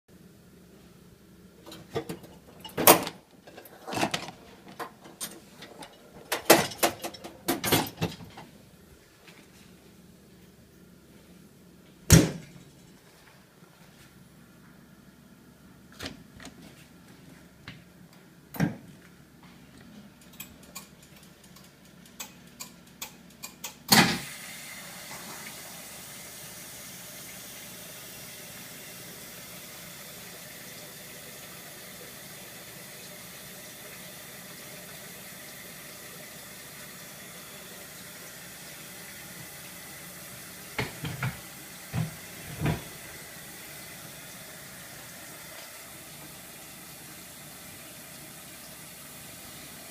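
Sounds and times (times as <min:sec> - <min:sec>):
dishwasher clicks and knocks: 0:01.7 - 0:03.2, 0:03.9 - 0:08.5
water running into tub: 0:24.3 - 0:49.9.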